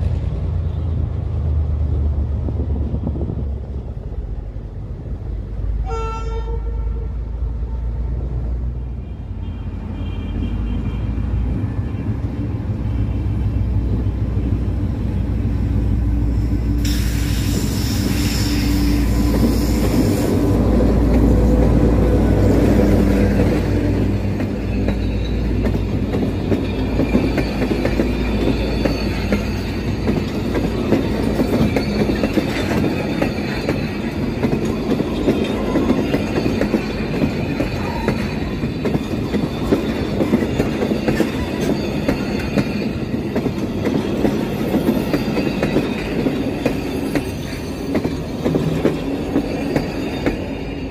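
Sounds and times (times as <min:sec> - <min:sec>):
train horn blast: 0:05.8 - 0:08.2.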